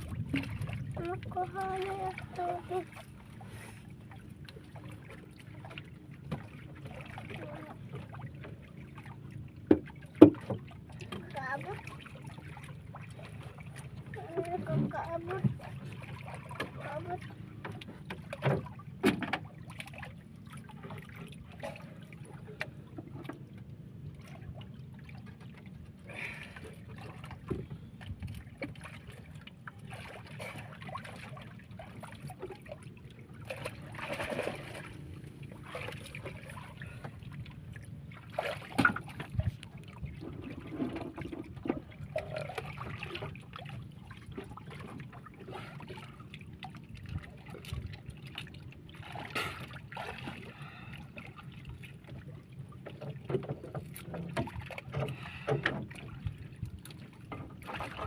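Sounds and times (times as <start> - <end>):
steady low rumble: 0.0 - 9.7
water sloshing and splashing: 0.0 - 58.0.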